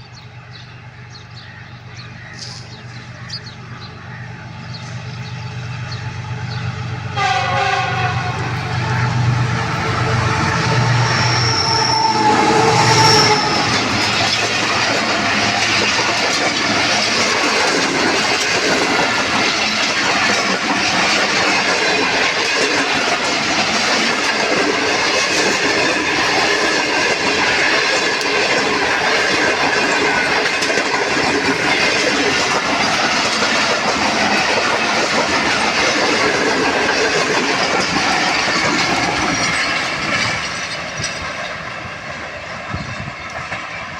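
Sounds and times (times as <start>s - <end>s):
train rushing past: 0.0s - 43.9s
locomotive horn: 7.1s - 14.2s.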